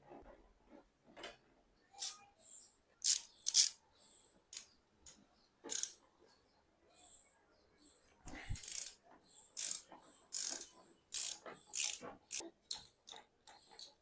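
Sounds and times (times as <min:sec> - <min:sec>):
tools rasping and ratcheting on metal: 0:03.0 - 0:03.8, 0:05.7 - 0:06.0, 0:08.3 - 0:09.0, 0:09.6 - 0:14.0.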